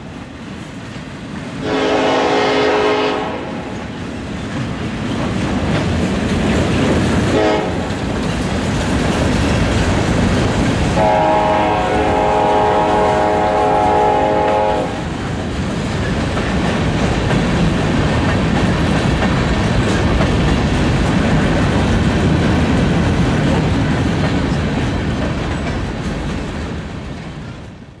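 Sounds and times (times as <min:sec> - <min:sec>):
train wheels rumbling on rails: 0:00.0 - 0:28.0
train horn: 0:01.6 - 0:03.8, 0:07.3 - 0:08.0, 0:11.0 - 0:15.1.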